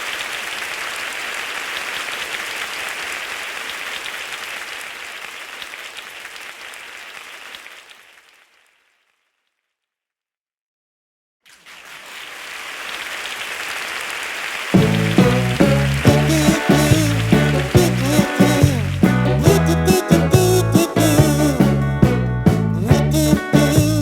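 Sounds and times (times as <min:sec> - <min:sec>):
heavy rain pouring: 0:11.8 - 0:21.6.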